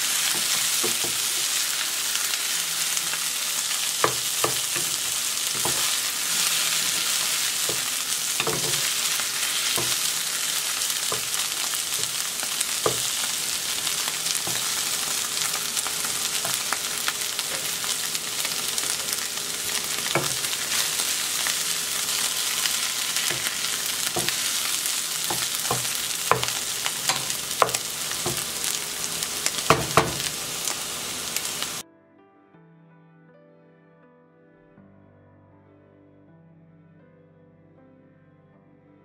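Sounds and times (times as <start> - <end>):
vegetables sizzling in a pan: 0.0 - 31.8
utensil clicking against pan: 25.3 - 28.8.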